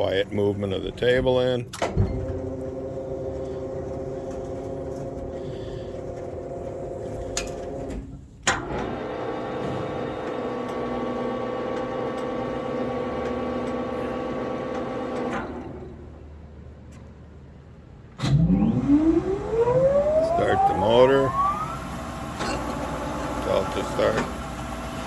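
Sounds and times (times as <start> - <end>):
grinder table drive humming: 18.6 - 25.0.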